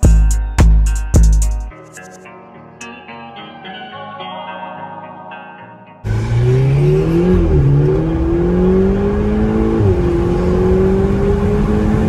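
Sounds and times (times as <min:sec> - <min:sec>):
car engine accelerating: 0:06.0 - 0:12.0.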